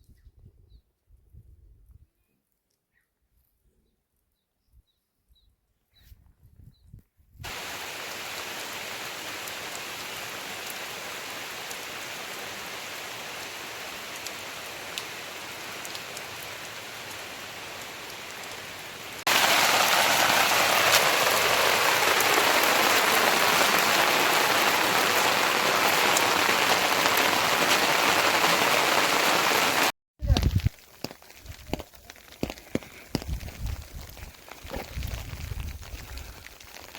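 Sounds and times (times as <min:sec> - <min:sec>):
heavy rain: 0:07.4 - 0:36.9.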